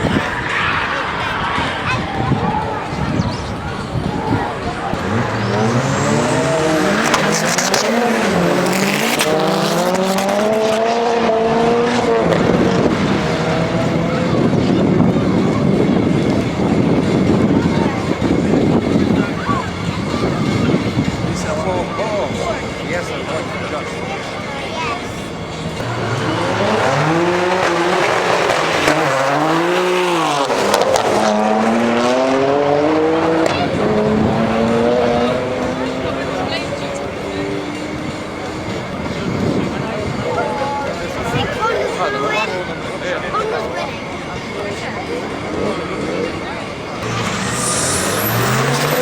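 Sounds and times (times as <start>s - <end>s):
tyre noise: 0.0s - 21.2s
car engine accelerating: 0.0s - 49.0s.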